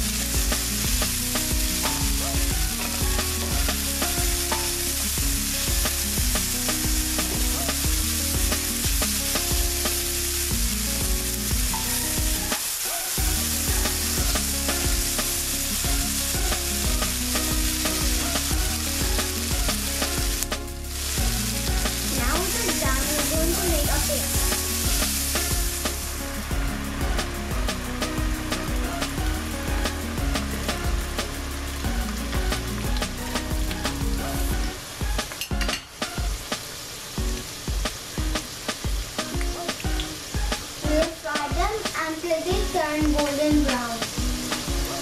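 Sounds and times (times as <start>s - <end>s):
onions sizzling in hot oil: 0.0s - 35.4s.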